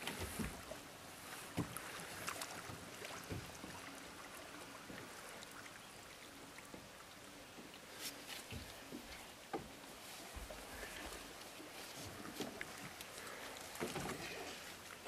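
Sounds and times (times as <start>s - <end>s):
paddle knocks and splashes: 0.0s - 3.9s, 8.4s - 11.3s, 11.9s - 14.6s.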